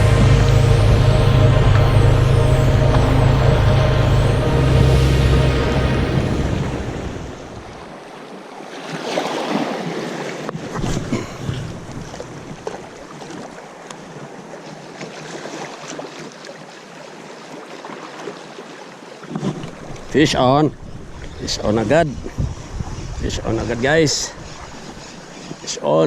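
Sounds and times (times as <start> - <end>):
small waves washing on shore: 5.4 - 26.0
wind buffeting microphone: 19.7 - 25.5.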